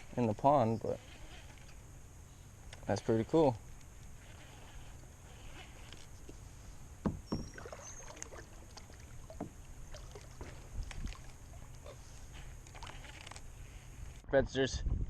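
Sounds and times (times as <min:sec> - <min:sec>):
low steady rumble: 0:00.0 - 0:15.0
knocks and splashes against kayak hull: 0:07.0 - 0:11.9.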